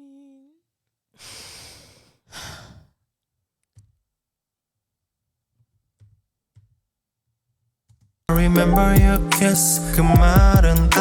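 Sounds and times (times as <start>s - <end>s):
person sighing heavily: 1.2s - 3.0s.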